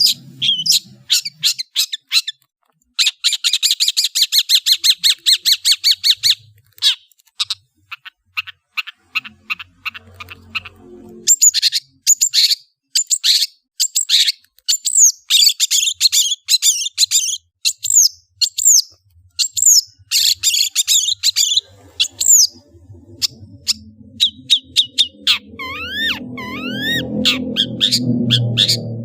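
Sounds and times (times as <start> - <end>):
high falling whistles: 21.4 - 29.0.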